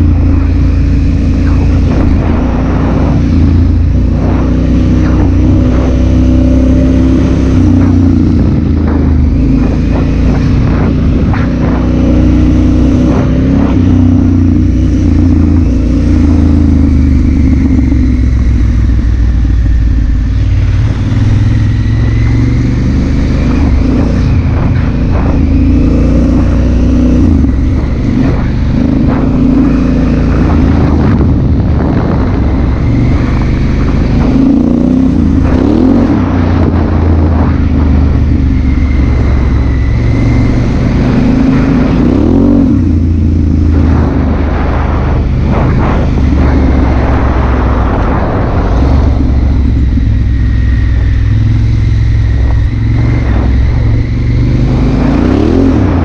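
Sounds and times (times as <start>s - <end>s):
motorcycle engine running: 0.0s - 56.0s
wind rush: 0.0s - 56.0s.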